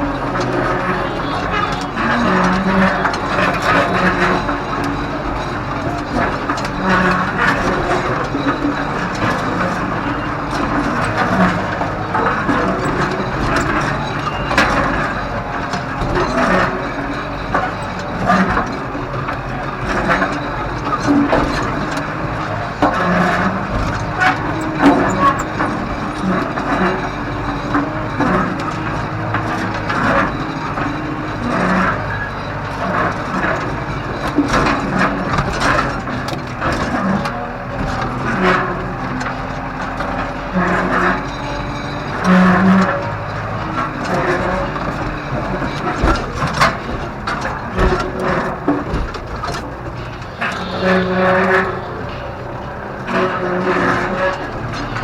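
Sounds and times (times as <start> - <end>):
roller knocking and rattling: 0.0 - 55.0
tractor running: 0.0 - 55.0.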